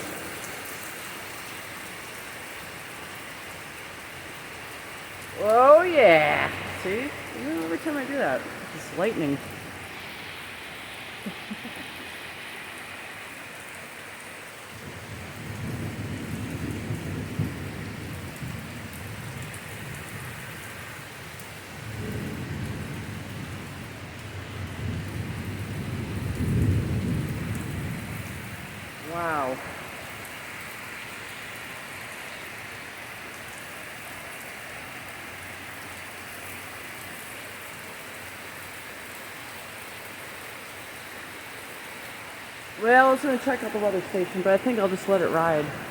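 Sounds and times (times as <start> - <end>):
heavy rain pouring: 0.0 - 45.9
thunder rolling: 14.8 - 19.4.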